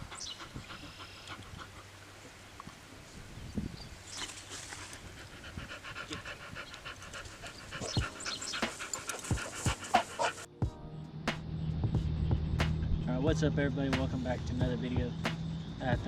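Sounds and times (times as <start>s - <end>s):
dog panting: 0.0s - 2.0s, 4.7s - 10.5s.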